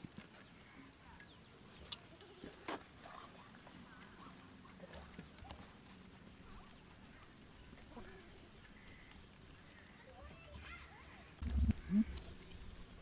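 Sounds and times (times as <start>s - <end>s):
insects trilling: 0.0s - 13.0s
faint animal calls: 6.4s - 12.6s.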